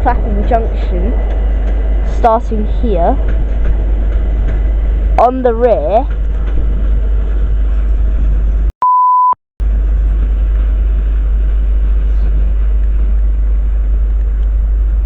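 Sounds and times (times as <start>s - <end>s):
low background rumble: 0.0s - 8.7s, 9.6s - 15.0s
short pure bleep tone: 8.8s - 9.4s.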